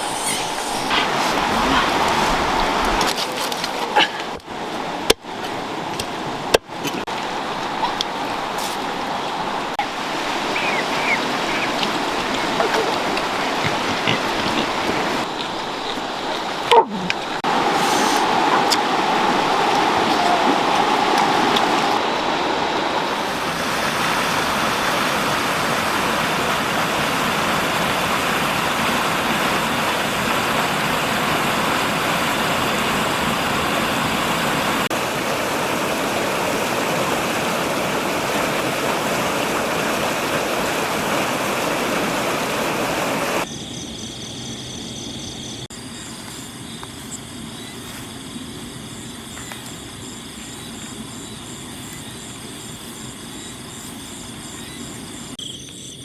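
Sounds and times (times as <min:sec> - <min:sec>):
rushing water: 0:00.0 - 0:43.5
night insects chirping: 0:00.0 - 0:56.0.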